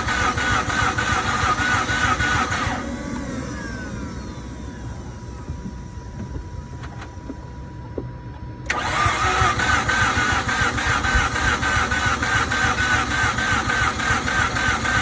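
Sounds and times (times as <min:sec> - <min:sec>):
engine cranking on starter: 0:00.0 - 0:05.4, 0:08.6 - 0:15.0
faint steady whine: 0:01.8 - 0:08.8.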